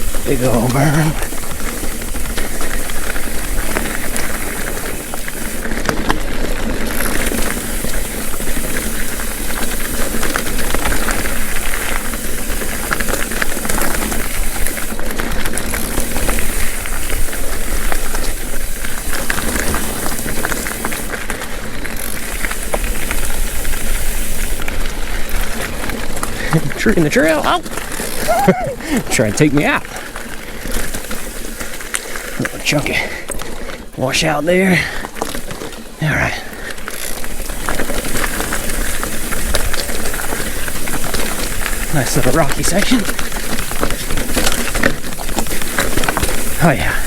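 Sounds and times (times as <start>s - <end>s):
bike rattling: 0.0s - 47.0s
tyres rolling over rock: 0.0s - 47.0s.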